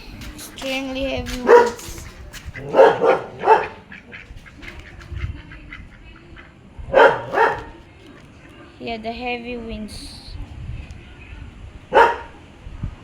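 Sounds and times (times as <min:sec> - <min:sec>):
wind rumble on microphone: 0:00.0 - 0:13.0
dog barking: 0:01.4 - 0:04.2, 0:06.9 - 0:07.9, 0:11.9 - 0:12.4.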